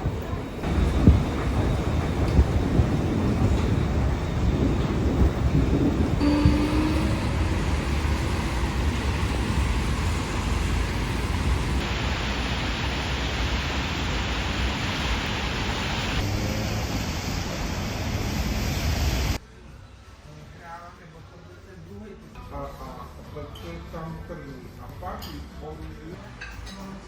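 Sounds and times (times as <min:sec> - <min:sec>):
vehicle rumbling in motion: 0:00.0 - 0:19.4.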